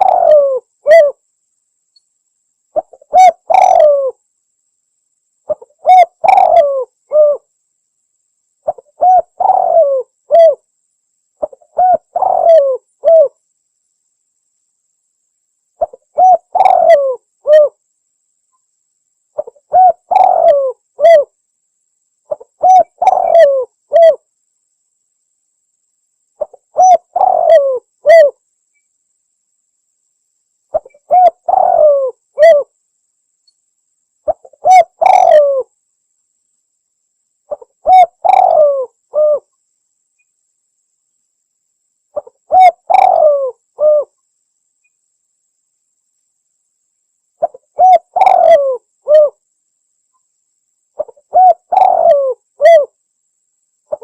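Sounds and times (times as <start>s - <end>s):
dove cooing: 0.0s - 1.2s, 2.8s - 4.2s, 5.5s - 7.5s, 8.6s - 10.6s, 11.4s - 13.4s, 15.8s - 17.8s, 19.4s - 21.3s, 22.3s - 24.2s, 26.4s - 28.4s, 30.7s - 32.7s, 34.2s - 35.7s, 37.5s - 39.5s, 42.2s - 44.2s, 47.4s - 49.4s, 51.0s - 53.0s.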